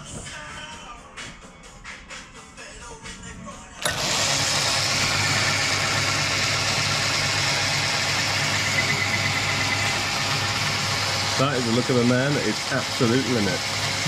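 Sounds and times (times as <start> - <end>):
metal lathe running: 3.8 - 14.0.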